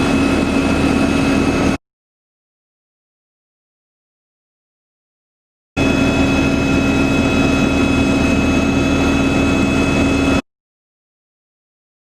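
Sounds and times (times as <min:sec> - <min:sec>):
helicopter turbine whine and rotor drone: 0:00.0 - 0:01.8, 0:05.8 - 0:10.4.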